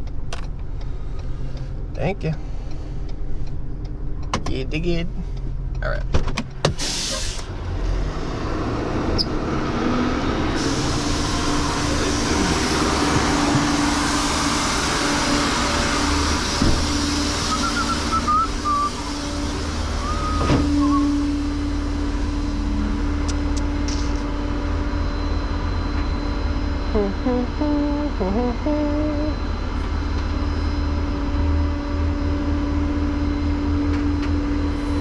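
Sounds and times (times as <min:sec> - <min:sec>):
vehicle engine rumbling: 0:00.0 - 0:35.0
short squeaky wavering tones: 0:17.4 - 0:21.6, 0:26.9 - 0:29.5.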